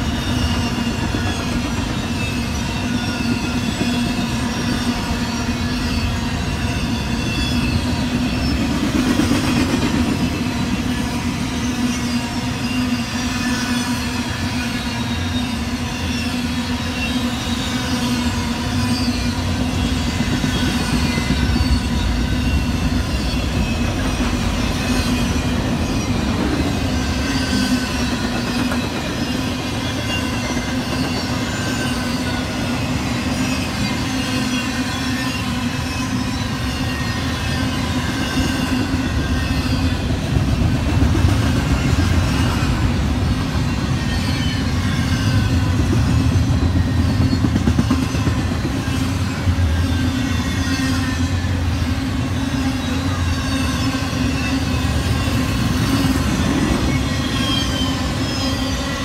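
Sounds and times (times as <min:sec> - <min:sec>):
train wheels rolling on rail: 0:00.0 - 0:59.0
wheel squeals: 0:41.3 - 0:59.0.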